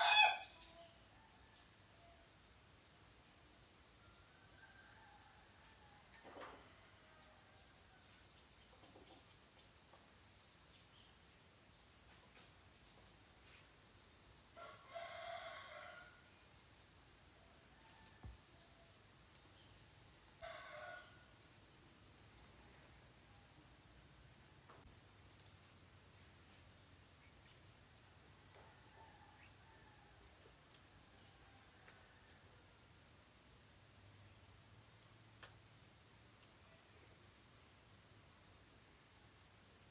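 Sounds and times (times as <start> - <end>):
rooster crowing: 0.0 - 1.6, 4.2 - 8.0, 14.6 - 16.4, 20.3 - 21.4.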